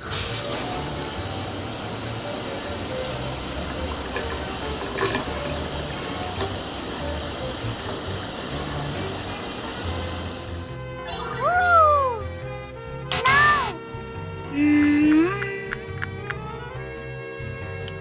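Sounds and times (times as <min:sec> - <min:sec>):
running water rushing: 0:00.0 - 0:12.2
faint background music: 0:00.0 - 0:18.0.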